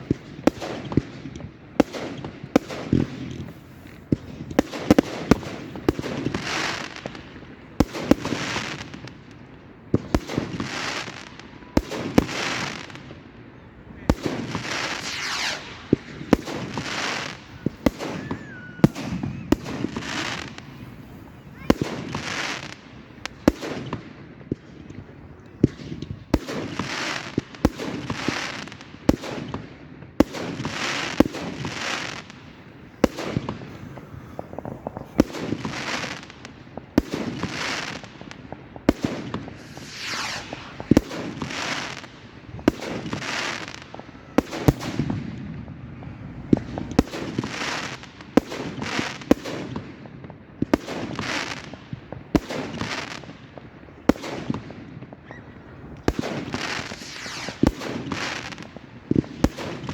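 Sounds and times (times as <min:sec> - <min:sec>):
fireworks banging: 0:00.0 - 0:59.9
fireworks hissing: 0:02.8 - 0:09.0, 0:14.1 - 0:23.5, 0:30.7 - 0:45.0, 0:56.0 - 0:59.9.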